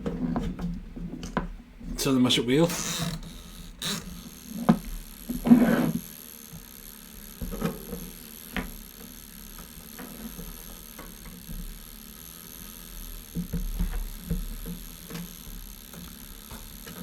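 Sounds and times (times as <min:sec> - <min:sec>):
rustling scrape: 0:05.3 - 0:06.2.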